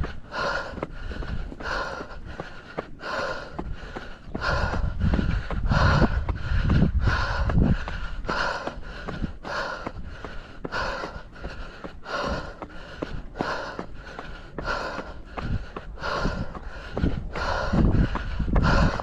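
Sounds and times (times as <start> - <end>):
wind on microphone: 0.0 - 13.9, 14.6 - 19.0
faint footsteps: 0.0 - 19.0
runner panting hard: 0.0 - 19.0.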